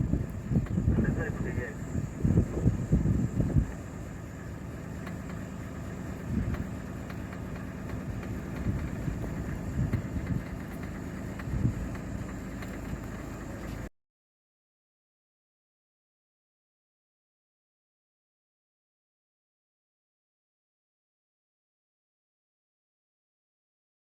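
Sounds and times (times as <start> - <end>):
vehicle engine low rumble: 0.0 - 13.9.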